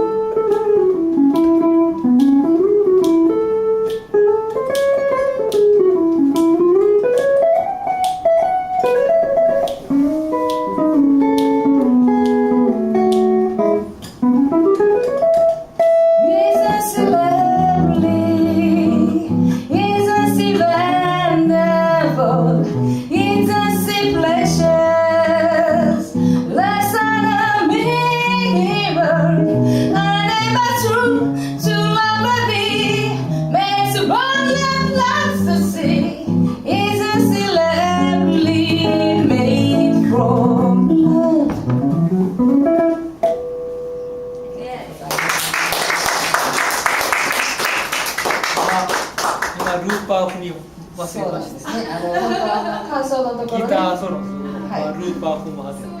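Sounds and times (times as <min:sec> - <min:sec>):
electric guitar solo: 0:00.0 - 0:45.8, 0:53.6 - 0:56.0
guitar accompaniment: 0:00.0 - 0:56.0
person singing: 0:16.2 - 0:41.8.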